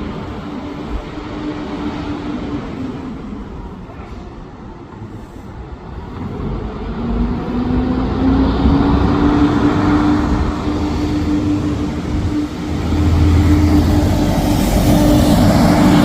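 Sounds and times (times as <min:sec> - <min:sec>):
bus engine humming: 0:00.0 - 0:16.0
vehicle approaching: 0:04.9 - 0:16.0.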